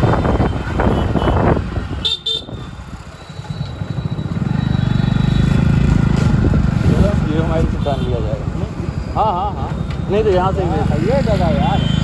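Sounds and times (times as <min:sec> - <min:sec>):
vehicle horn toots: 0:00.1 - 0:02.8.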